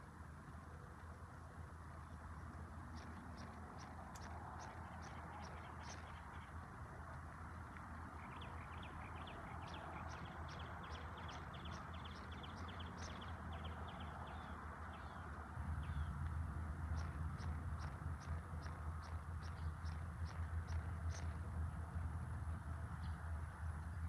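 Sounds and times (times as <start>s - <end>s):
small birds chirping: 2.8s - 16.2s, 16.9s - 21.4s.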